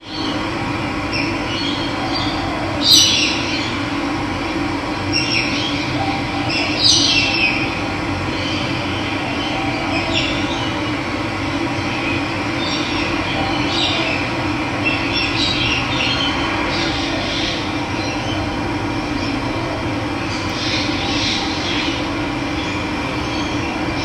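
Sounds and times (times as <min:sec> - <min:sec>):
birds calling: 0:00.0 - 0:24.0.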